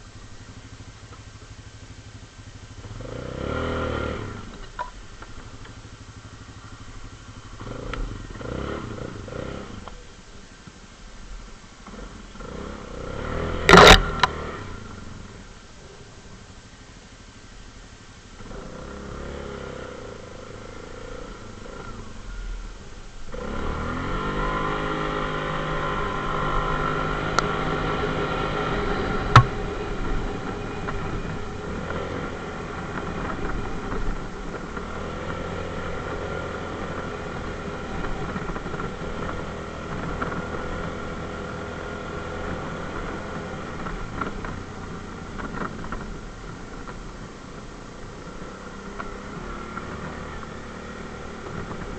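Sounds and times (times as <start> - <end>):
atv engine revving: 0.0 - 10.3, 11.8 - 16.0, 18.2 - 51.9
sharp click: 13.7 - 14.4.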